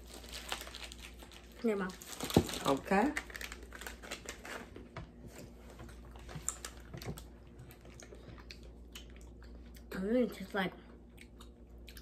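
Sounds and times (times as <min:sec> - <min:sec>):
snack packets rustling: 0:00.0 - 0:09.1
people chewing crunchy peanuts: 0:06.1 - 0:10.0, 0:10.9 - 0:12.0.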